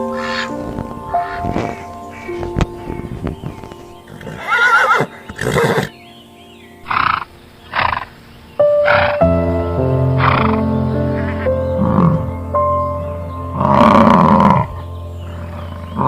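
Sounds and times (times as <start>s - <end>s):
background music: 0.0s - 16.0s
horse whinnying: 4.1s - 5.9s.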